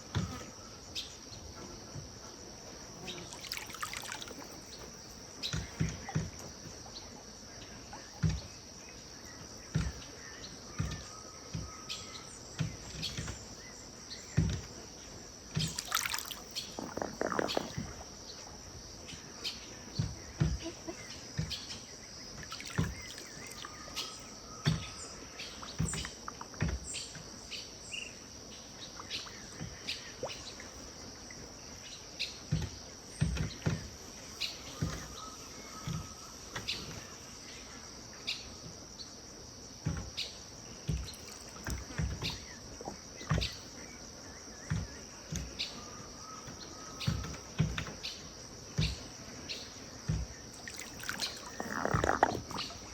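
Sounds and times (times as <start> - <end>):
high insect drone: 0.0 - 52.9
river water lapping: 3.2 - 7.2, 15.5 - 19.8, 22.3 - 27.2, 40.8 - 44.0, 50.2 - 52.9
birds calling: 15.6 - 30.8, 40.2 - 52.9.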